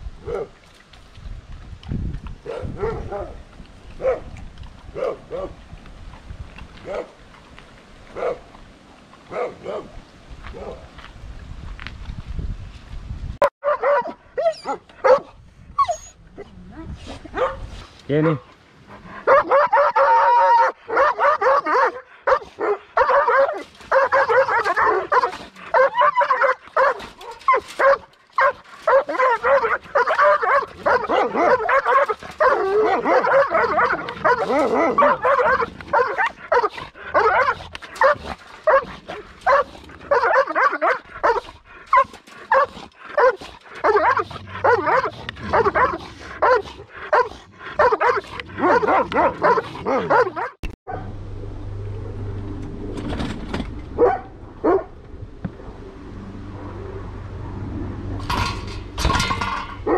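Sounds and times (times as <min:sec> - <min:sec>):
dogs barking excitedly: 0:00.2 - 0:00.6, 0:02.4 - 0:03.4, 0:04.0 - 0:05.6, 0:06.8 - 0:07.2, 0:08.1 - 0:08.5, 0:09.3 - 0:10.8, 0:13.6 - 0:16.1, 0:17.3 - 0:51.1, 0:53.9 - 0:55.0, 0:58.2 - 0:59.9.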